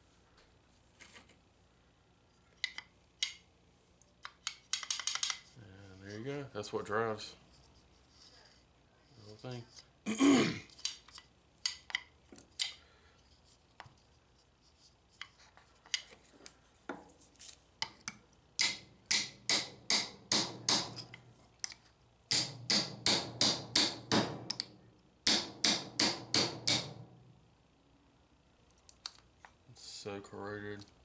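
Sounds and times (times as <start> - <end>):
hammer tapping on metal: 18.6 - 21.2, 22.3 - 27.0.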